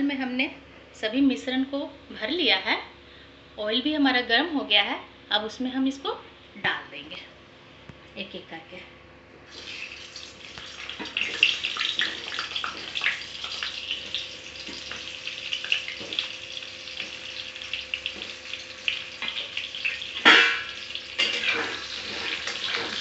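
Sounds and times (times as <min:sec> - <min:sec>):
food sizzling in hot oil: 0:09.5 - 0:23.0.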